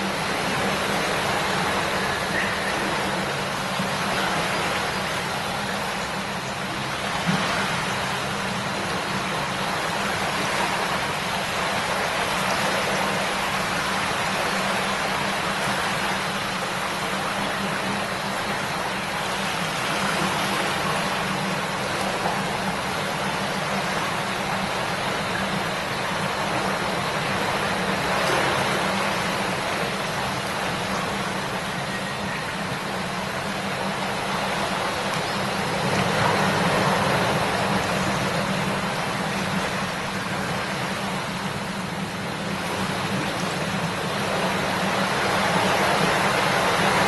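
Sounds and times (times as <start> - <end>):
river babbling over stones: 0.0 - 47.0.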